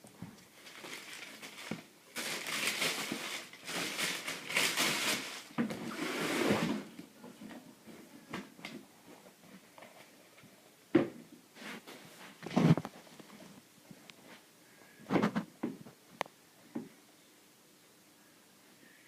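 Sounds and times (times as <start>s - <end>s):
paper rustling and crinkling: 0.2s - 6.0s.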